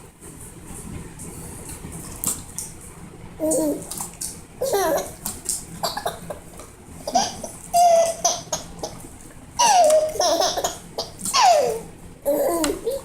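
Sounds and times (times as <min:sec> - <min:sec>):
baby laughing and squealing: 0:07.1 - 0:09.0, 0:09.6 - 0:13.0.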